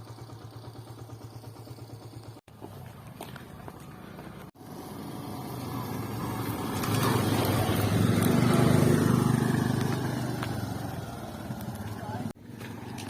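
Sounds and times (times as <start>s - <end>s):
vehicle engine passing by: 2.6s - 13.0s.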